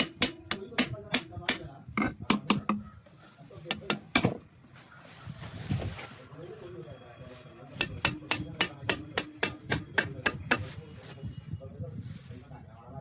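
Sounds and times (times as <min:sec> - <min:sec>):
tool tapping metal engine part: 0:00.0 - 0:02.9, 0:03.7 - 0:04.4, 0:07.8 - 0:10.8.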